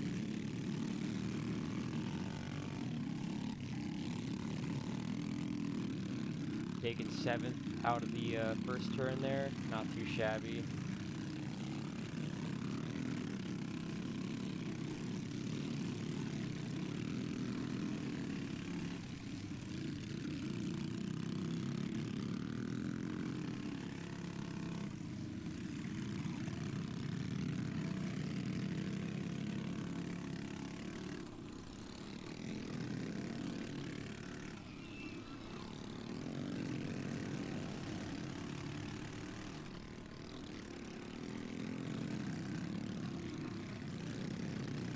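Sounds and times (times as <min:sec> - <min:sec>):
small engines buzzing: 0:00.0 - 0:44.9.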